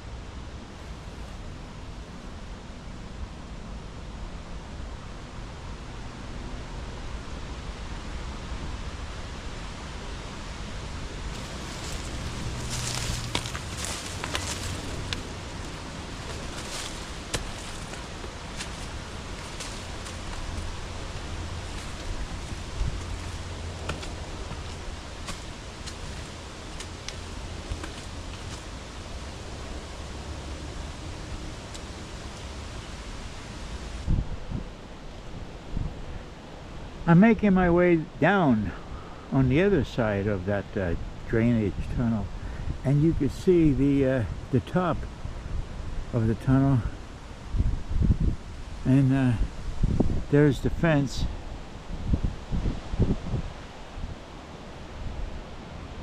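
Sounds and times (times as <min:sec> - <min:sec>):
wind buffeting microphone: 0:11.2 - 0:36.2, 0:44.3 - 0:56.0
faint clicks and rustles: 0:11.3 - 0:34.0.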